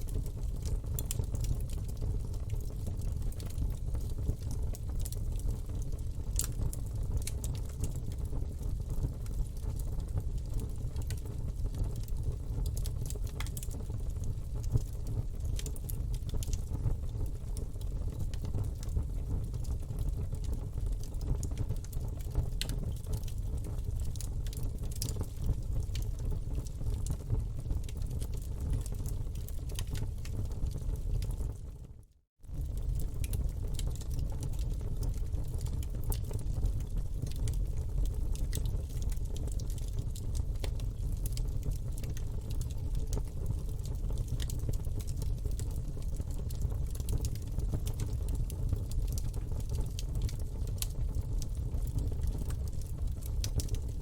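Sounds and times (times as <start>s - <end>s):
burning wood crackling and popping: 0.0s - 31.7s, 32.4s - 54.0s
low rumble of flames: 0.0s - 54.0s.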